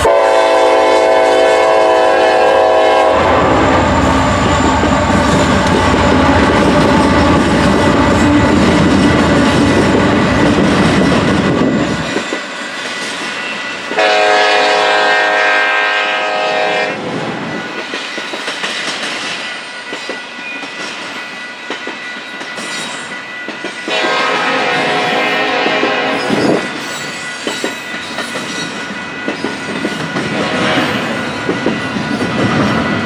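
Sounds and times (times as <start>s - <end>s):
locomotive air horn blasts: 0.0s - 3.9s, 14.0s - 17.0s, 23.9s - 26.4s
locomotive rumble: 0.1s - 12.2s.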